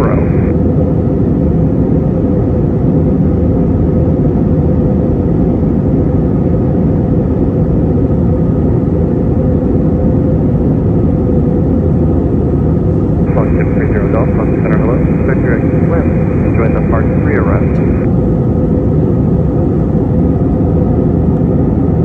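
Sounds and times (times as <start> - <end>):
steady hum: 0.0 - 1.3, 11.8 - 22.0
turbofan engine drone: 0.0 - 22.0.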